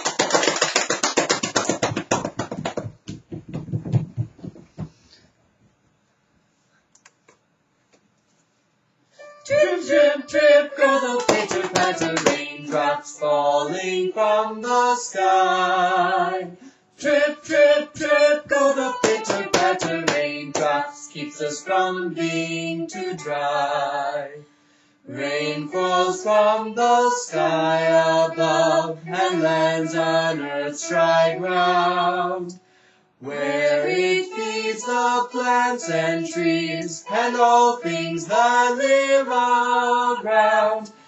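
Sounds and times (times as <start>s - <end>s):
person singing: 9.2s - 32.6s, 33.2s - 41.0s.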